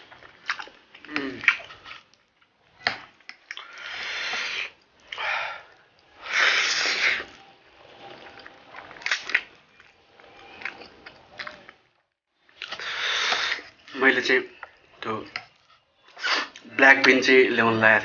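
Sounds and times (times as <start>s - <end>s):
chewing and mouth clicks: 0.0s - 2.5s, 8.0s - 11.9s
noodles slurped: 3.4s - 11.8s, 12.6s - 14.0s.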